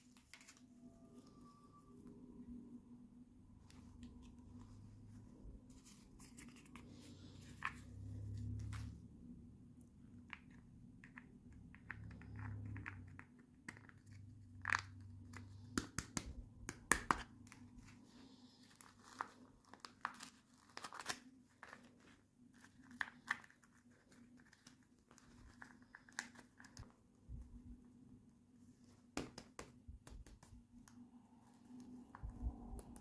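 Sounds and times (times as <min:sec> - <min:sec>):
packaging crinkling and tearing: 0:18.7 - 0:26.9.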